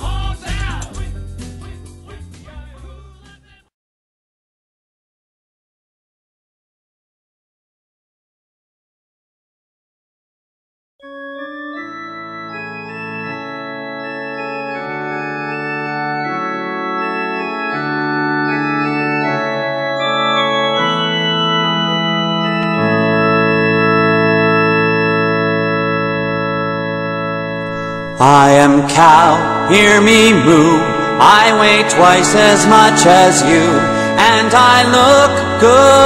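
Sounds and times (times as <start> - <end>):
organ chords: 0.0 - 3.6, 11.0 - 36.0.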